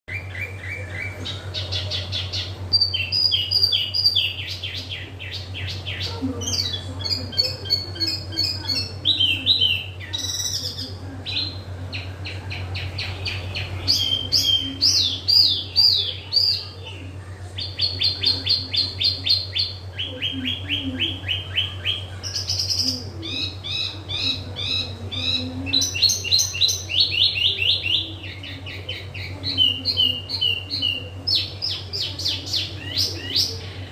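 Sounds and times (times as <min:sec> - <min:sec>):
songbird singing trills: 0:00.1 - 0:16.7, 0:17.6 - 0:33.9
steady low hum: 0:00.1 - 0:33.9.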